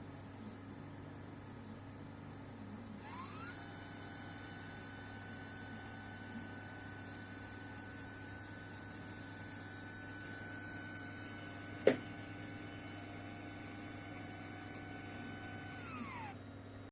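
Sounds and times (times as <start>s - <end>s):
stepper motors whining and humming: 3.0s - 6.6s, 8.3s - 16.4s.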